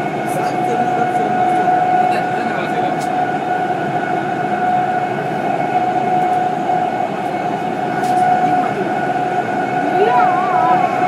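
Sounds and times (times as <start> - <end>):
train rumble and rail noise: 0.0 - 11.0
high-pitched whine: 9.6 - 11.0.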